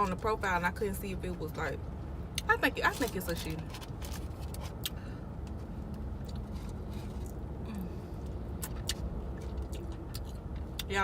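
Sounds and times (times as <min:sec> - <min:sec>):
car interior rumble: 0:00.0 - 0:11.0
chewing and lip-smacking: 0:04.2 - 0:07.5, 0:08.2 - 0:11.0.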